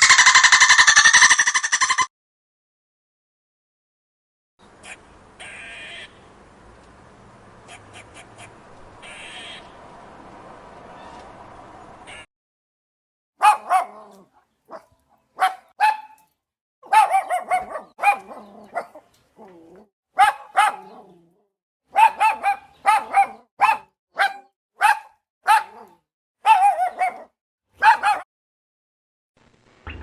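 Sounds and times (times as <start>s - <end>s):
dog barking: 13.4s - 19.1s, 20.2s - 21.2s, 21.9s - 28.3s.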